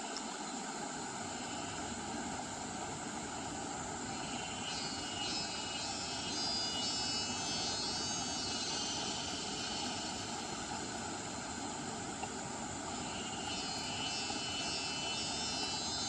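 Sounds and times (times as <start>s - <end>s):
faint high whine: 0.0s - 16.0s
stream water flowing: 0.0s - 16.0s.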